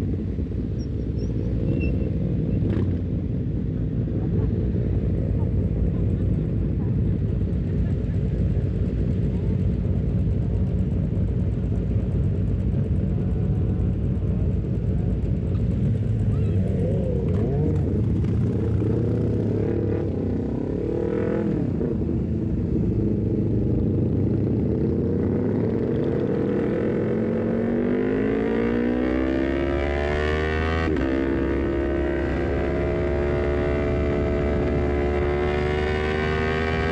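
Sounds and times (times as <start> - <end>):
motorcycle engine revving: 15.2 - 36.9.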